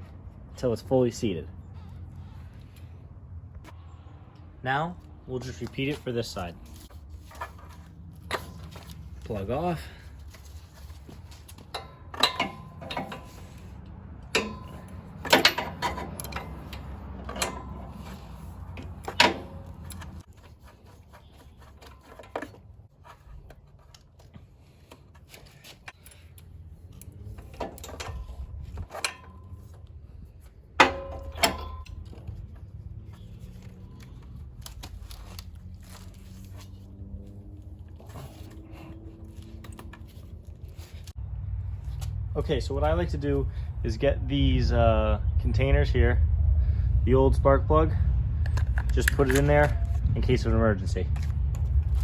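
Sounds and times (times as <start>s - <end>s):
metal tools clicking and clinking: 11.2s - 20.3s, 25.2s - 29.9s, 30.8s - 32.4s, 48.5s - 50.0s
faint low rumble: 40.6s - 52.0s.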